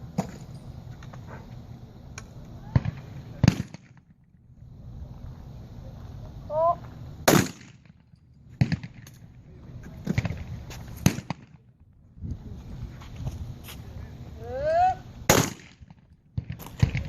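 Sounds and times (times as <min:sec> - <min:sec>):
shotgun shots: 0:02.8 - 0:04.0, 0:07.2 - 0:08.0, 0:08.6 - 0:09.0, 0:11.0 - 0:11.6, 0:15.3 - 0:17.0.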